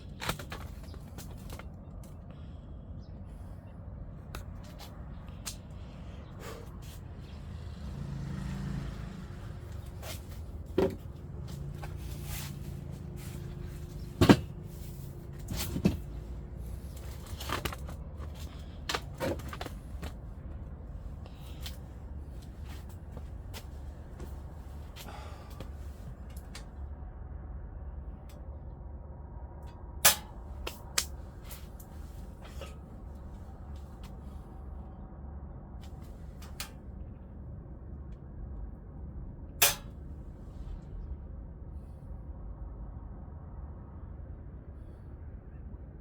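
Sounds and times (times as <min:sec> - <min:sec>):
steady low hum: 0:00.0 - 0:46.0
knocks and clanks: 0:13.8 - 0:14.6.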